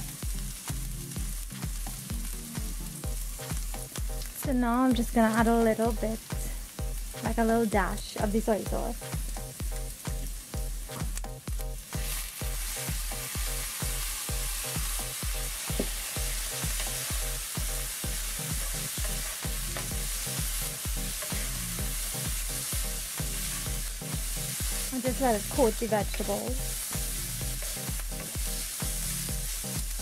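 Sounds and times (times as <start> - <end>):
background music with steady beat: 0.0 - 30.0
vegetables sizzling in a wok: 0.0 - 30.0
wooden spoon scraping wok: 11.9 - 30.0.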